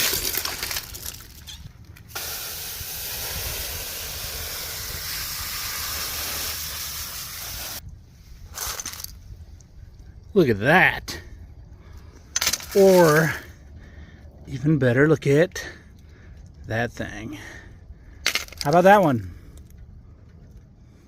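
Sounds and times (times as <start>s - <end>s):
stones clattering: 0.0s - 2.1s, 8.5s - 9.2s, 12.3s - 13.4s, 18.2s - 18.9s
running water spraying: 0.0s - 7.8s, 12.4s - 13.4s.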